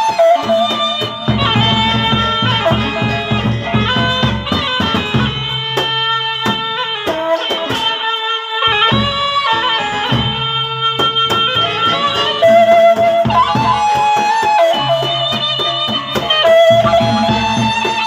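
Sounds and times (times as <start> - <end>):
large barrel drums: 0.0 - 7.8, 8.9 - 18.0
cymbals clashing: 0.0 - 18.0
shrill reed melody: 0.0 - 18.0.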